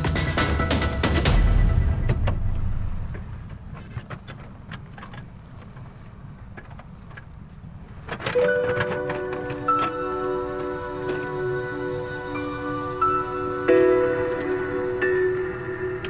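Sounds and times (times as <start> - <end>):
music: 0.0 - 3.2, 8.4 - 16.0.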